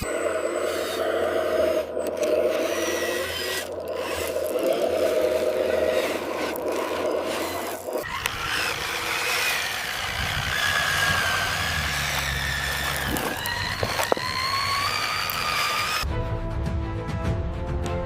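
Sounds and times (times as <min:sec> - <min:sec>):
model motor whining: 0:00.0 - 0:16.0
scraping rubbing sound: 0:00.7 - 0:14.6.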